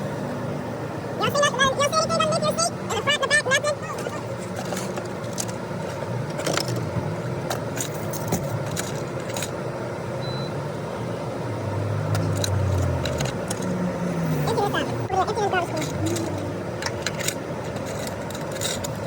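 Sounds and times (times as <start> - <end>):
clicks knocks and jangles: 7.5 - 9.6, 12.1 - 13.8, 15.7 - 19.0.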